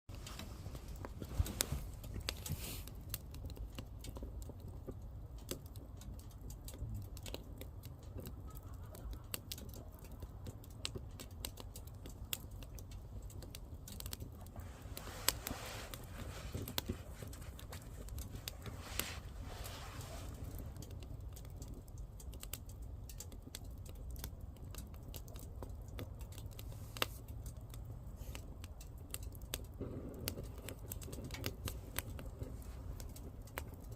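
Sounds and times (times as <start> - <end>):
fire hissing: 0.1 - 3.5, 12.1 - 22.0
firewood crackling and popping: 0.1 - 33.9
low rumble of fire: 0.1 - 33.9.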